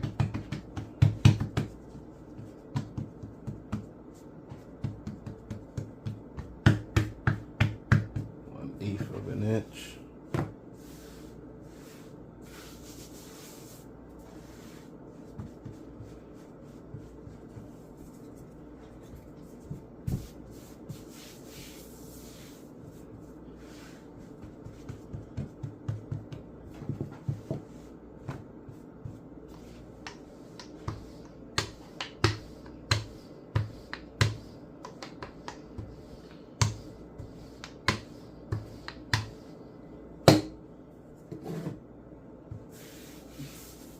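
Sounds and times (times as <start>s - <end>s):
taps and knocks on kitchen counter: 0.0s - 1.8s, 4.8s - 8.4s, 10.3s - 10.6s, 40.2s - 40.6s
steady low hum: 0.0s - 43.9s.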